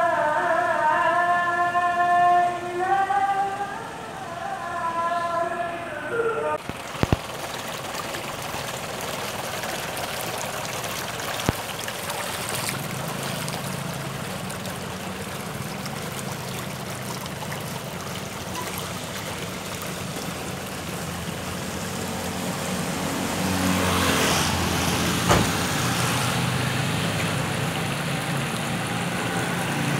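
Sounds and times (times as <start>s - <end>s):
low engine hum: 0.0s - 29.9s
flowing floodwater: 6.6s - 29.9s
sharp knock: 25.3s - 25.6s.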